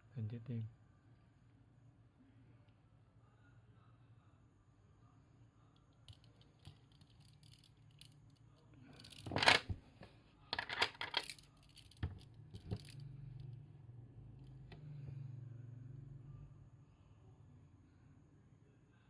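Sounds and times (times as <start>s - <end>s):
bead bracelets clicking: 6.0s - 9.3s, 10.6s - 13.1s.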